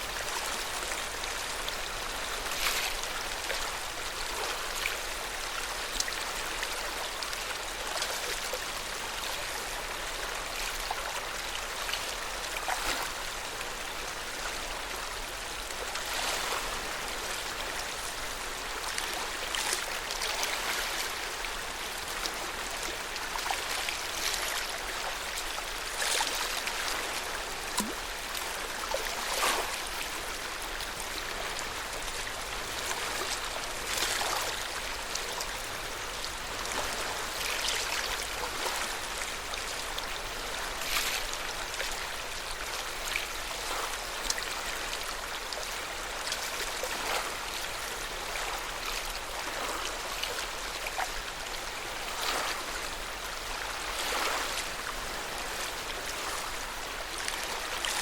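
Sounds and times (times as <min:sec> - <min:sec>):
lake water lapping: 0:31.0 - 0:42.0, 0:53.5 - 0:58.0.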